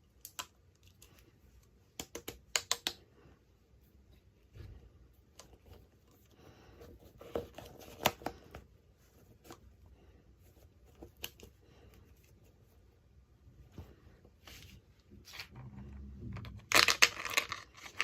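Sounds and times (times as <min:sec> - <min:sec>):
small clicks and taps on plastic: 0:01.9 - 0:03.0.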